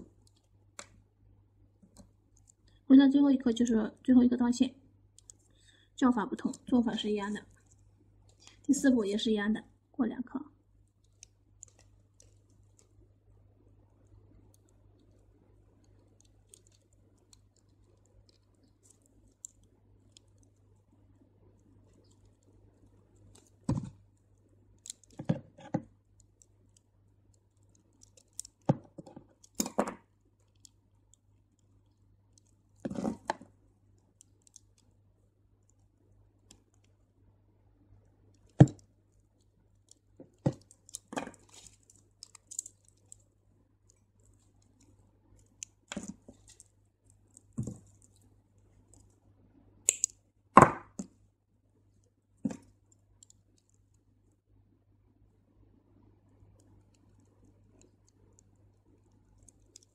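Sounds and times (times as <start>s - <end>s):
beads clicking and rustling: 10.8s - 13.0s, 14.0s - 37.0s, 38.3s - 49.2s, 56.6s - 59.9s.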